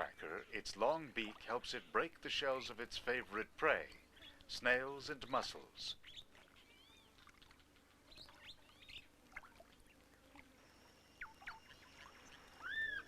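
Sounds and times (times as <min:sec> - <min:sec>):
thin steady high tone: 0:08.0 - 0:13.0
birds chirping and whistling: 0:11.2 - 0:13.0.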